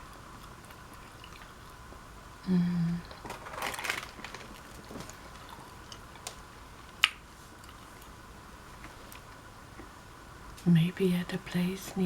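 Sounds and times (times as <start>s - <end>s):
chewing and crunching: 0.0s - 2.0s, 3.0s - 9.9s
person humming: 2.4s - 3.1s.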